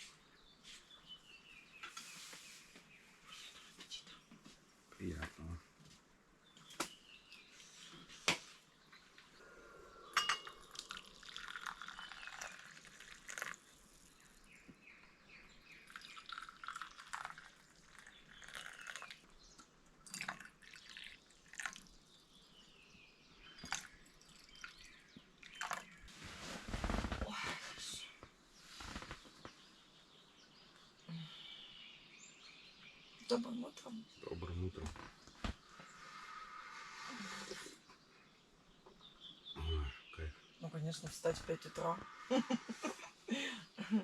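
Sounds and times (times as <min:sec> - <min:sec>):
water dripping: 0:10.2 - 0:14.7, 0:15.8 - 0:22.2, 0:23.6 - 0:26.1.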